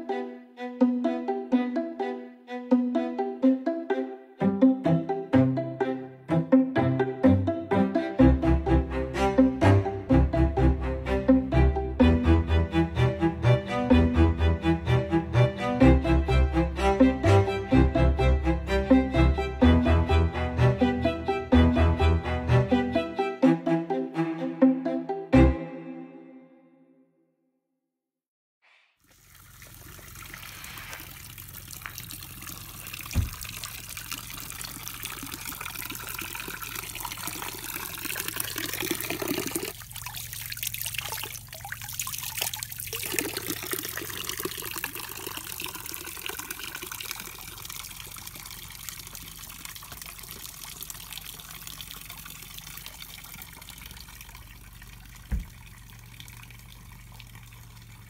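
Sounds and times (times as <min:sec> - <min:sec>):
water trickling and splashing: 0:29.0 - 0:58.0
low thumps: 0:55.2 - 0:55.7.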